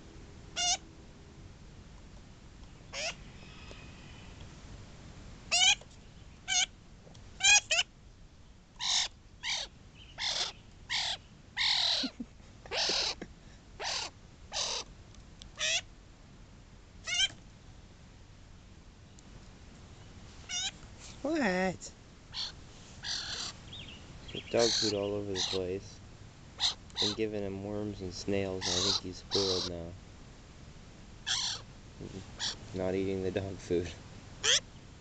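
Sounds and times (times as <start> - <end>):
young bird calling: 0.5 - 0.8, 2.9 - 4.4, 5.5 - 6.8, 7.4 - 7.9, 8.8 - 14.9, 15.5 - 15.9, 17.0 - 17.4, 20.5 - 21.7, 22.3 - 27.4, 28.4 - 30.0, 31.2 - 32.7, 34.4 - 34.8.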